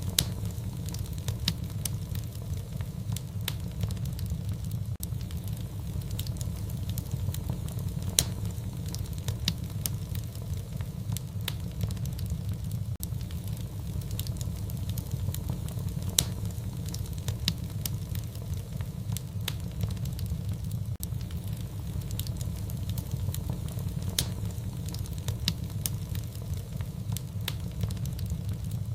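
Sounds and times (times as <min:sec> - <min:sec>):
fire crackling and popping: 0:00.0 - 0:28.9.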